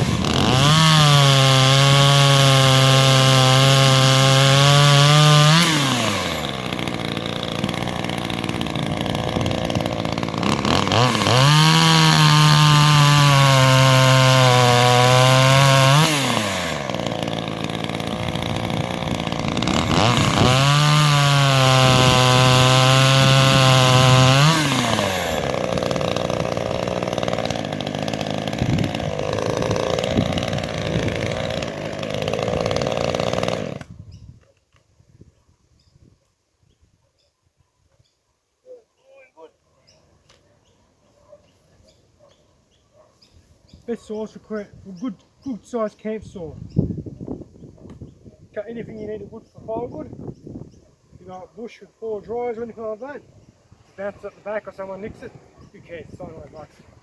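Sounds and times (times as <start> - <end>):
chainsaw revving and idling: 0.0 - 34.0, 53.9 - 57.0.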